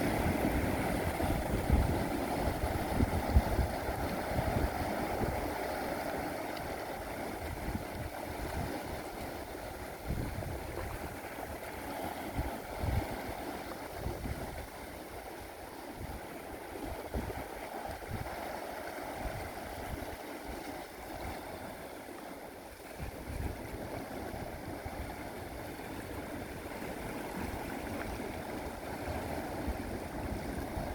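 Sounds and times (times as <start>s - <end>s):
wind buffeting microphone: 0.0s - 18.5s, 22.9s - 30.9s
sea waves washing on shore: 0.0s - 30.9s.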